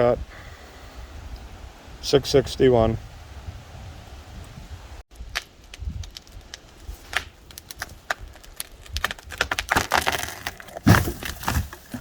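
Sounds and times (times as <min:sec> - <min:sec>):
twigs crackling and snapping: 0:05.1 - 0:12.0.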